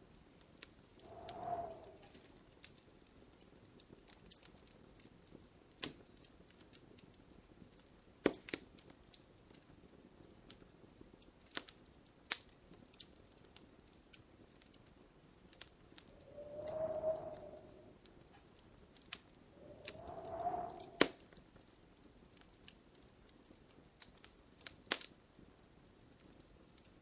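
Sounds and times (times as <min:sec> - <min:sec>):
wood fire crackling and snapping: 0:00.1 - 0:27.0
low hiss: 0:00.8 - 0:02.5, 0:16.0 - 0:18.2, 0:19.1 - 0:21.3.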